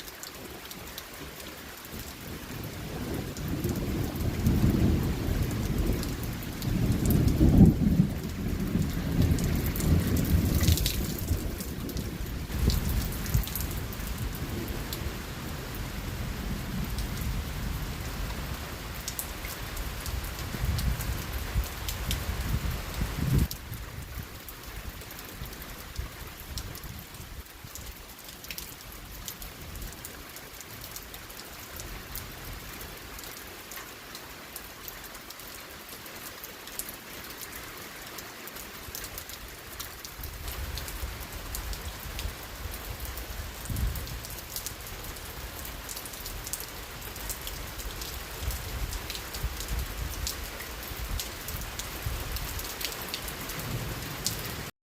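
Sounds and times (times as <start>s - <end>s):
steady rain falling: 0.0s - 54.7s
raindrop hits: 3.0s - 15.1s.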